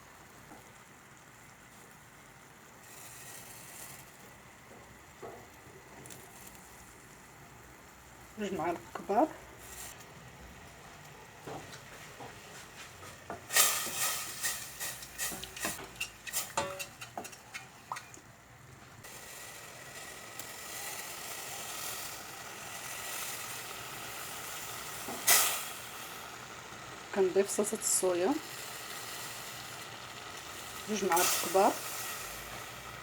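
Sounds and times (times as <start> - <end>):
liquid sizzling in a pan: 0.0 - 33.0
sharp clinks and knocks: 14.9 - 18.2.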